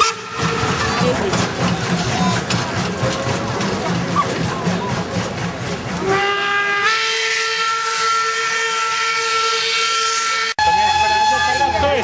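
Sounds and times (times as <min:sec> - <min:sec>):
steam locomotive whistle: 0:00.0 - 0:01.0, 0:06.0 - 0:12.0
steam hissing: 0:00.0 - 0:08.1.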